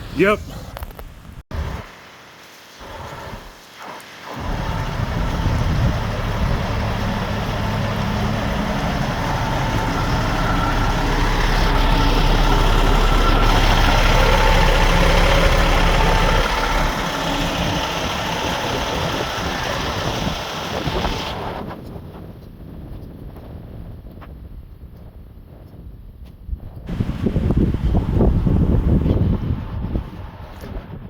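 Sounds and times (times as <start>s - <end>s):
diesel truck engine rumbling: 4.2s - 21.7s, 26.9s - 31.0s.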